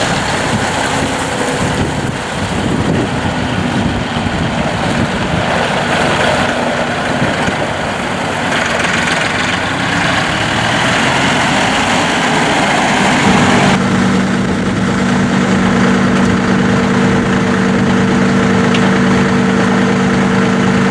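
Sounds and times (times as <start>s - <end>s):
hissing noise: 0.0s - 13.8s
tractor diesel engine running: 0.0s - 20.9s.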